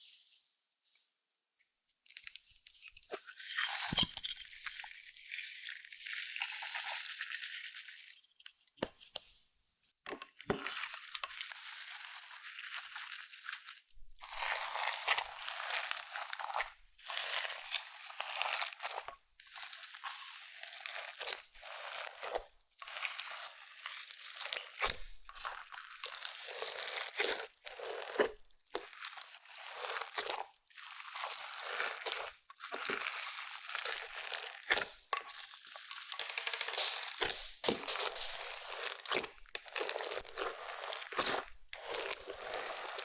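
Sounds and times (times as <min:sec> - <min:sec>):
slime crackling and popping: 0:10.4 - 0:43.0.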